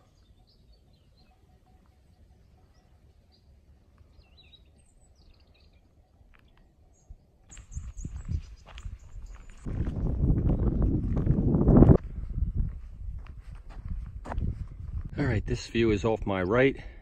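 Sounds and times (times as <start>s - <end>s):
wild birds chirping: 0.0s - 11.1s.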